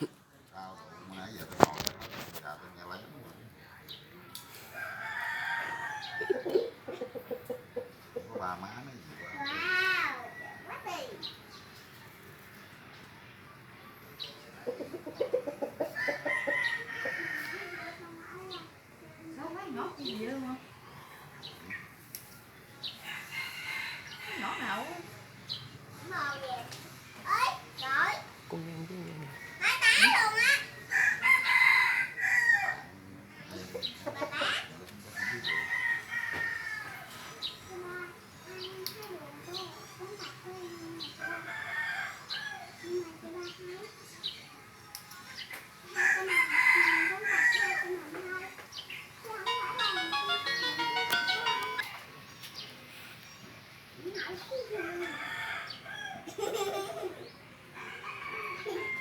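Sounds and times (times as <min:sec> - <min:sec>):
rooster crowing: 0:04.8 - 0:06.4, 0:30.9 - 0:32.8, 0:54.9 - 0:56.3, 0:57.8 - 0:59.0.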